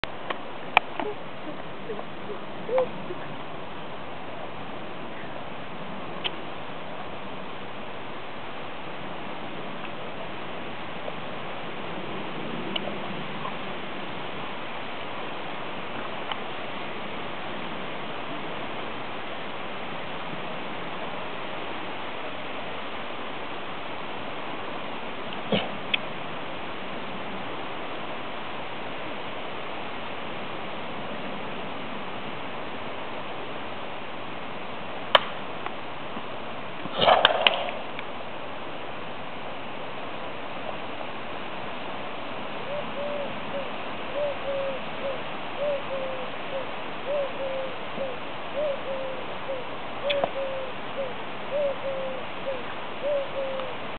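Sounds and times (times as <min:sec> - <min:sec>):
bird calling with low notes: 0:00.9 - 0:03.4, 0:42.7 - 0:53.8.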